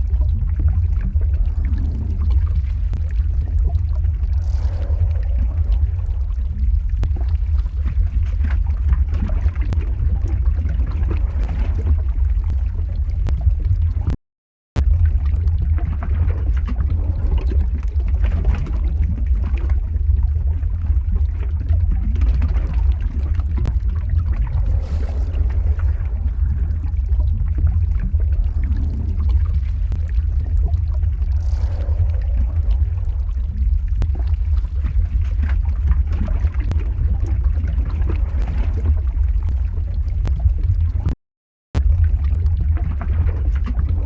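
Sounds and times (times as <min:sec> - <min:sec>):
lava deep rumble: 0:00.0 - 0:14.2, 0:14.8 - 0:44.0
sharp crackles: 0:22.8 - 0:36.9.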